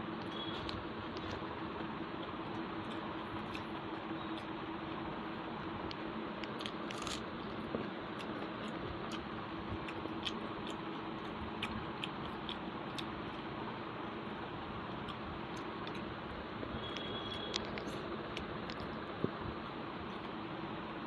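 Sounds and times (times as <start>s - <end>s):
person chewing wetly: 2.2s - 4.5s, 5.9s - 14.2s, 14.8s - 16.1s, 16.8s - 19.4s.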